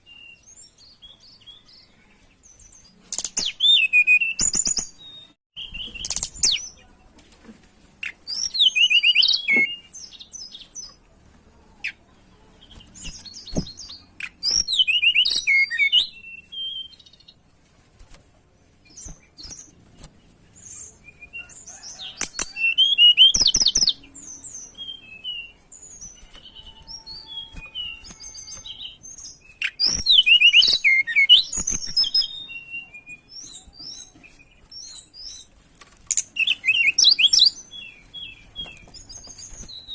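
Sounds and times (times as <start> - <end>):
soft bird chirps: 18.4 - 39.9.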